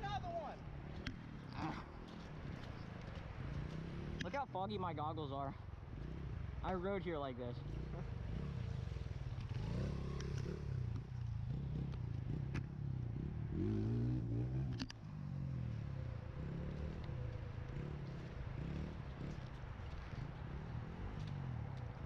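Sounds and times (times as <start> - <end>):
motorbike engine revving: 7.6 - 22.0.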